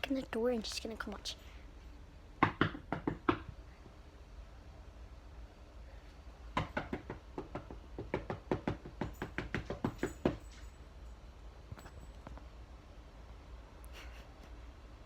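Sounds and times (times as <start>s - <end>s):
knocking on a door: 2.4s - 3.5s, 6.6s - 10.4s.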